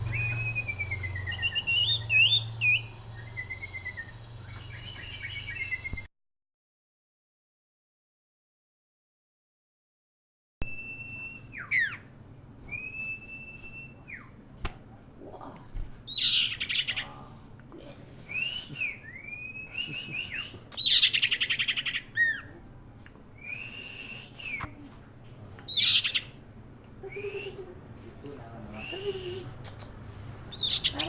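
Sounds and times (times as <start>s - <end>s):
bird whistling song: 0.0s - 6.1s, 10.6s - 14.4s, 16.1s - 17.1s, 18.2s - 22.5s, 23.4s - 24.8s, 25.7s - 26.4s, 27.0s - 27.7s, 28.7s - 31.0s.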